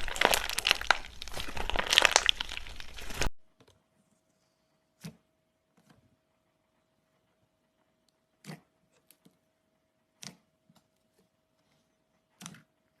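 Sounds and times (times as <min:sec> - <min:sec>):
slime crackling and popping: 0:00.0 - 0:03.3.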